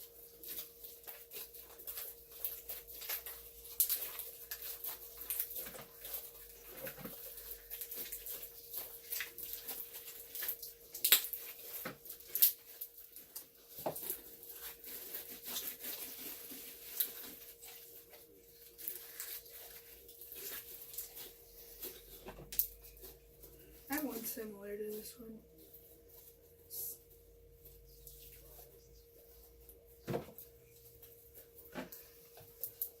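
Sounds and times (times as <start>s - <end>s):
hands squishing slime: 0.0s - 24.3s.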